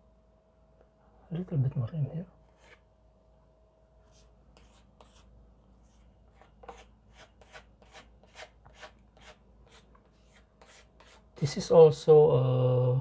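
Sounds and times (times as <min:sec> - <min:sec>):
filler scraping on wall: 0:04.0 - 0:11.3.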